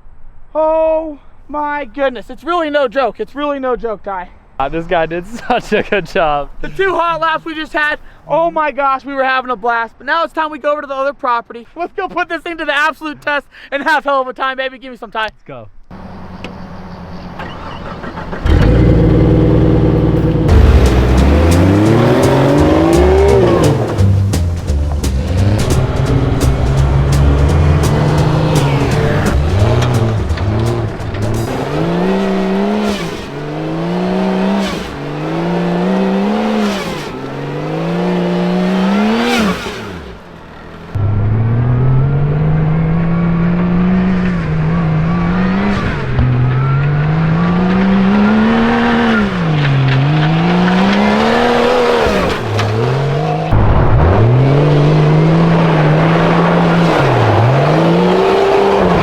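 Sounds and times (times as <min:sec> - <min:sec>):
car engine revving: 0:15.9 - 0:59.0.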